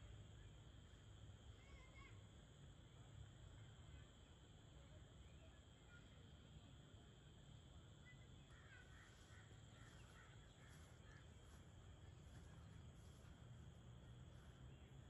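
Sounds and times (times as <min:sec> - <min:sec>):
faint harsh bird calls: 0:08.0 - 0:13.3.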